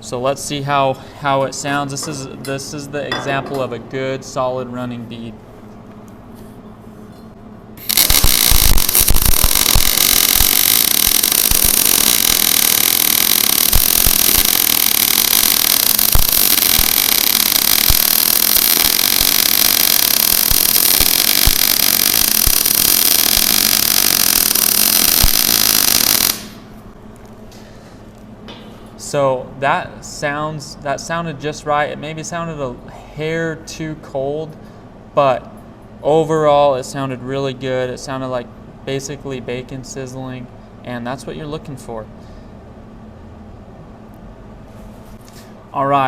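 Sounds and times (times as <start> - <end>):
welder sizzling: 7.8 - 26.7.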